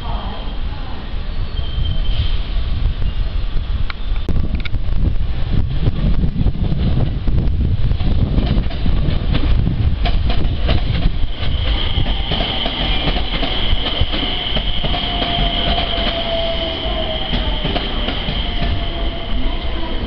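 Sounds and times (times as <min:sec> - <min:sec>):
high steady squeal: 0:11.1 - 0:20.0.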